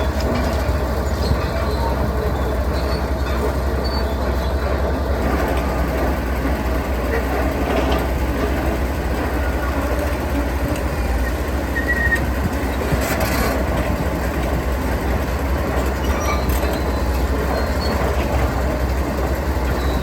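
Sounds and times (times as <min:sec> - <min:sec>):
faint metallic squeaks: 0:00.0 - 0:04.6
diesel machinery rumbling: 0:00.0 - 0:20.0.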